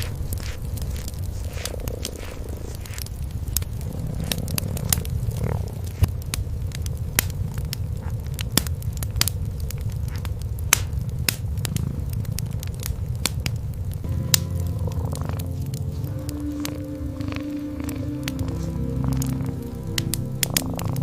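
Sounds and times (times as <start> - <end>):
cats purring: 0.0 - 21.0
wood fire crackling and popping: 0.0 - 21.0
steady tone: 14.1 - 21.0.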